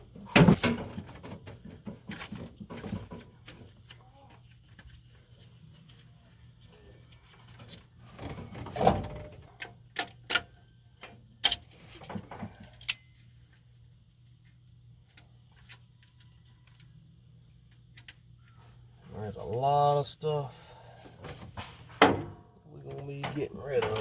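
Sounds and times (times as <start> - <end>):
metal parts clinking: 11.4 - 13.3
metal tools scraping: 23.0 - 24.0.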